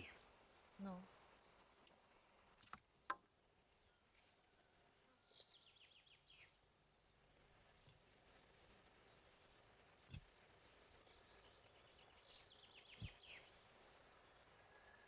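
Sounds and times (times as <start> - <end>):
songbird singing: 0.0 - 1.7, 4.7 - 7.4, 8.9 - 15.0.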